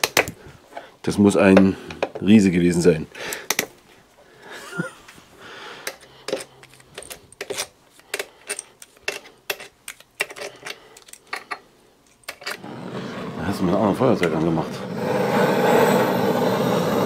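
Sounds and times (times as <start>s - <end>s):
metal tools clinking: 5.8s - 12.6s.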